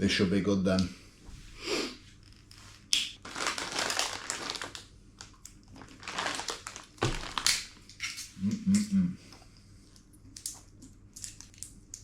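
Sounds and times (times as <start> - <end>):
plastic crinkling: 3.2 - 7.8.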